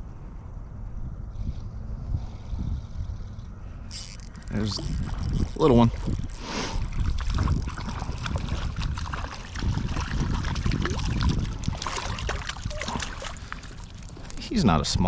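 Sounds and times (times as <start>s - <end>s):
river water sloshing and trickling: 3.8s - 15.0s
small water splashes: 4.0s - 14.9s.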